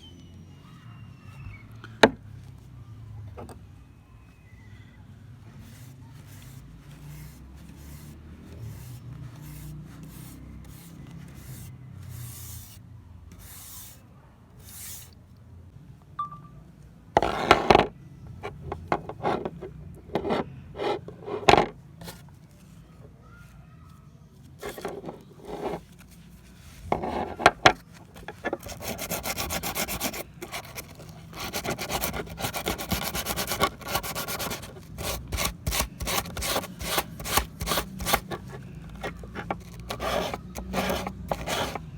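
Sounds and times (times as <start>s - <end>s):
scraping on rusty metal pliers: 26.8s - 41.9s.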